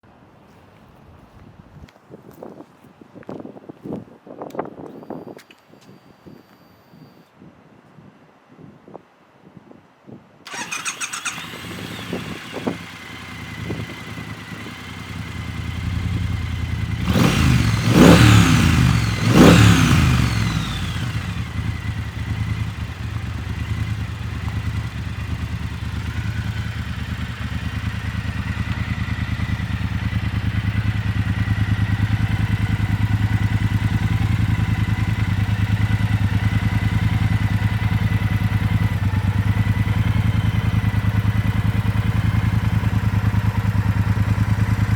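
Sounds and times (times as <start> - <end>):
motorcycle engine revving and idling: 10.5 - 44.9.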